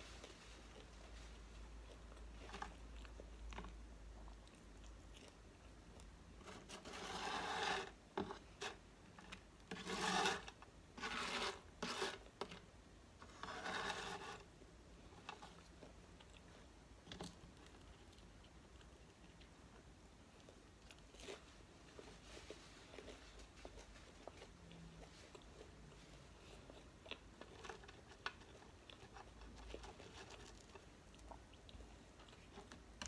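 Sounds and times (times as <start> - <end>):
food crunching: 15.2 - 33.0.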